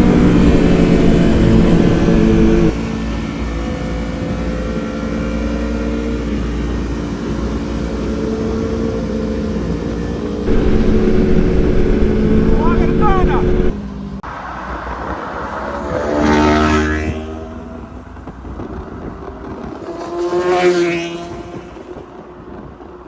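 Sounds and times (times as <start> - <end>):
motorcycle engines running: 0.0 - 3.1, 6.0 - 13.8.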